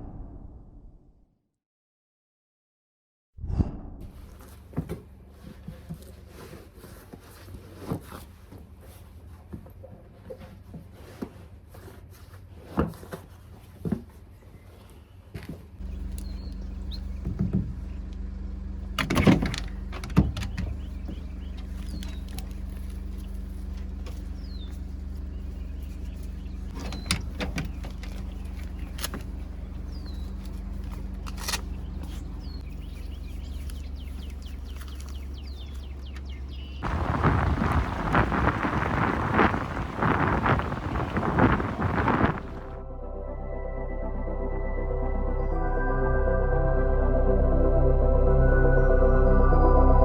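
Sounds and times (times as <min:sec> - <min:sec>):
bird chirps: 0:15.8 - 0:18.1, 0:19.5 - 0:42.7
low engine-like hum: 0:15.8 - 0:50.0
sharp knocks and clunks: 0:19.0 - 0:22.4
loud rushing noise: 0:36.8 - 0:42.8.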